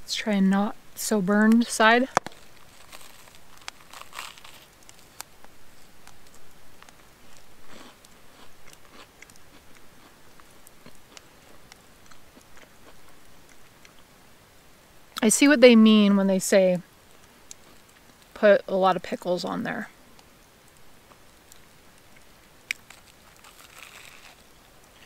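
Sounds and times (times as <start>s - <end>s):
person chewing crunchy toast: 2.2s - 14.0s, 21.1s - 25.0s.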